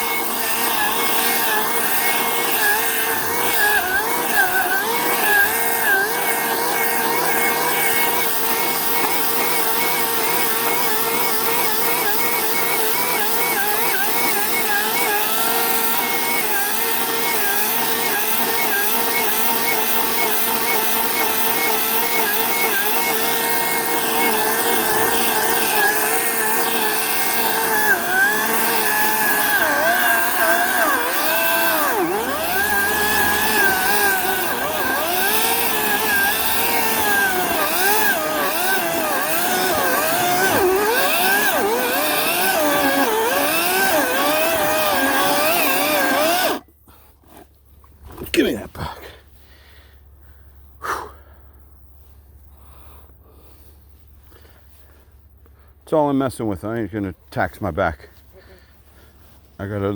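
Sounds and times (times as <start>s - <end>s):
electric chainsaw whining: 0.0s - 46.7s.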